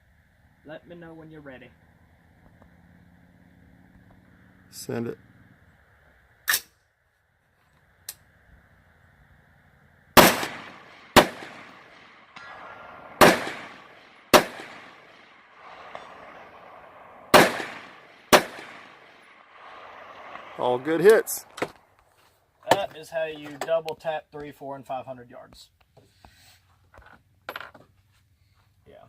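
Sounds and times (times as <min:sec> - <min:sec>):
rifle shots with echo: 0:10.2 - 0:21.8.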